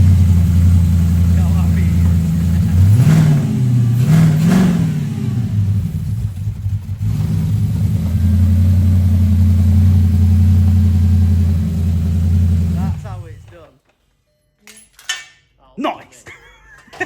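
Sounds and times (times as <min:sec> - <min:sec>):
car engine revving and idling: 0:00.0 - 0:13.6.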